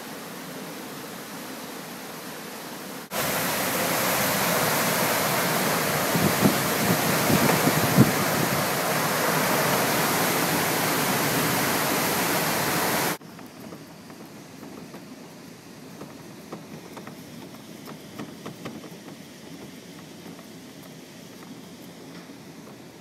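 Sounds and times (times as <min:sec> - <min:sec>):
hurricane wind and rain: 0:03.0 - 0:23.0
wind buffeting microphone: 0:03.1 - 0:13.2.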